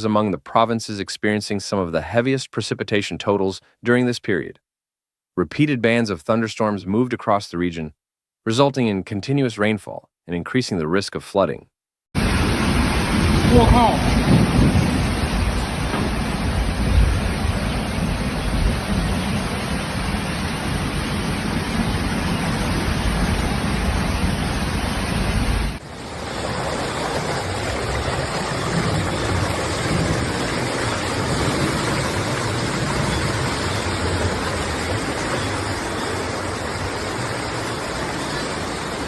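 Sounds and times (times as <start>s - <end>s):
heavy rainstorm rushing: 12.2s - 39.0s.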